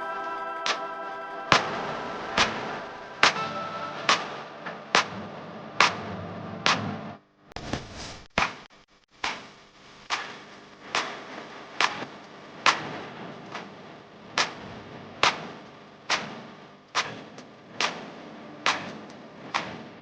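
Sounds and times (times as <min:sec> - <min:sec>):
sharp snapping percussive hits: 0:10.1 - 0:13.7, 0:14.4 - 0:19.8.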